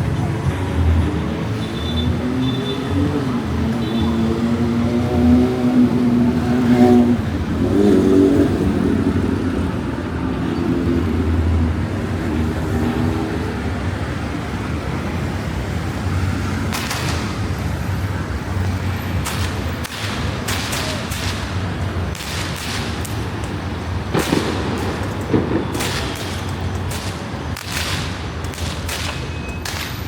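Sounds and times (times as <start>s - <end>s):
sharp cracks: 16.5s - 18.0s, 18.6s - 30.0s.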